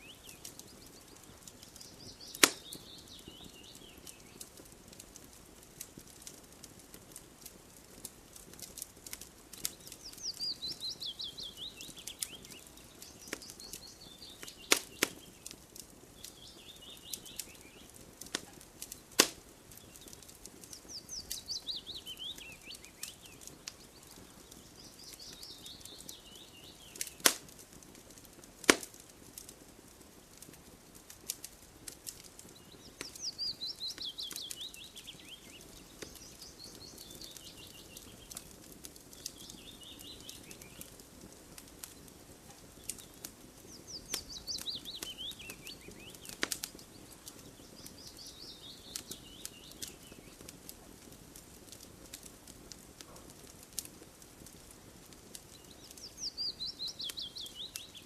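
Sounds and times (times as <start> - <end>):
wood fire crackling: 0.0 - 58.0
bird singing a falling trill: 43.7 - 46.4.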